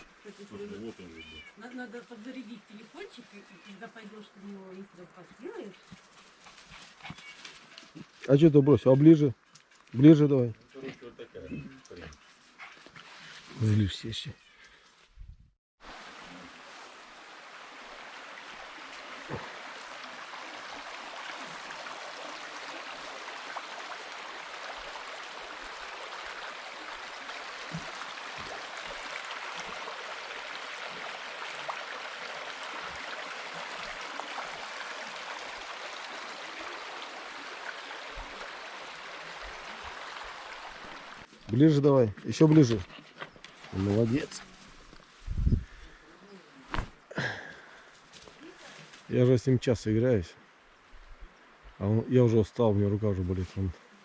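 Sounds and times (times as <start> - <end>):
river water rushing over stones: 15.8 - 41.3.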